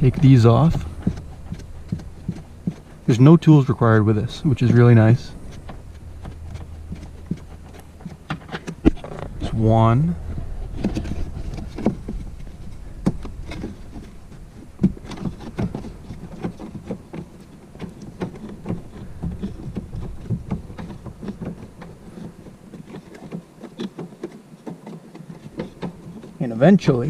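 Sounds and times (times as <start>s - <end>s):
low rumble: 0.0s - 21.3s.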